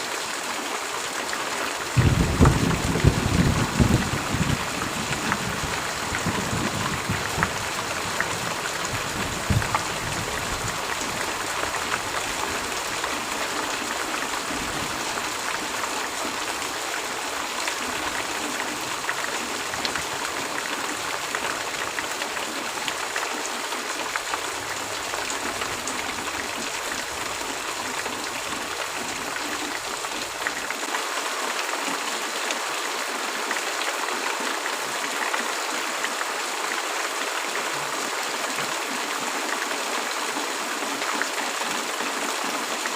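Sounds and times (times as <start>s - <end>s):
heavy rain hissing: 0.0s - 30.9s.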